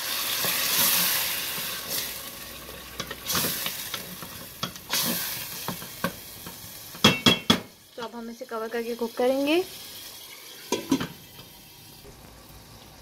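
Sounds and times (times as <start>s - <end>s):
masala sizzling in oil: 0.0s - 13.0s
spoon knocking against pot: 5.6s - 7.7s.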